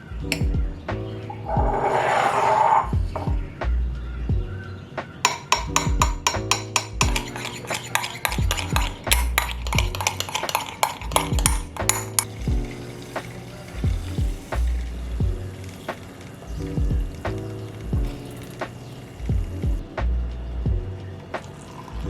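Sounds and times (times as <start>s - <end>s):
background music: 0.0s - 22.0s
utensil clicking against dishware: 5.3s - 12.3s.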